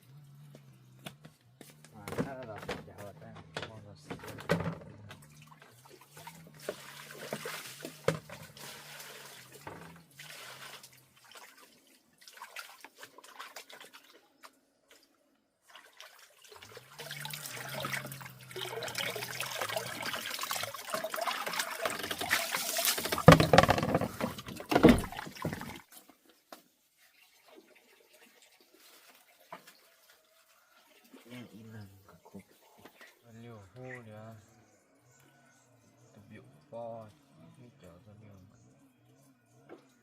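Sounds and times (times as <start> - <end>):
water trickling and pouring: 1.7 - 40.0
small knocks: 23.0 - 25.6.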